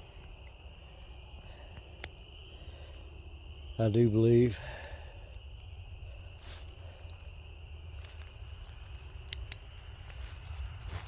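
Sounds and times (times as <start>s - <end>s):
crickets chirring: 0.0s - 11.0s
low outdoor rumble: 0.0s - 11.0s
sharp clicks: 9.2s - 9.7s.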